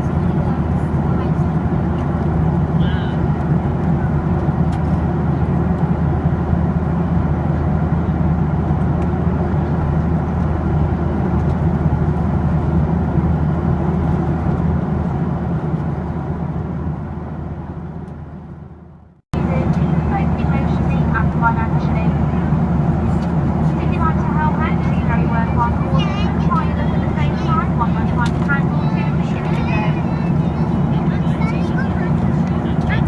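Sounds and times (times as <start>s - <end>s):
air rushing along fuselage: 0.0s - 33.0s
jet engine drone: 0.0s - 33.0s
low hum: 0.0s - 33.0s.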